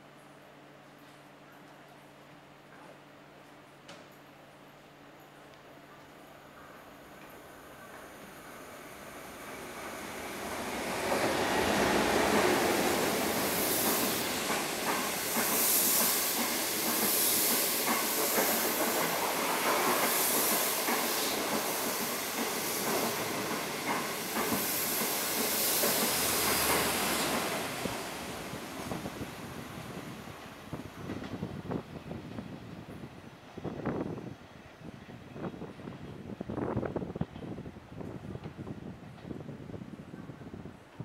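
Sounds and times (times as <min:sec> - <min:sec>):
train wheels on rail: 0:05.5 - 0:41.0
high hiss of passing coaches: 0:07.6 - 0:31.8.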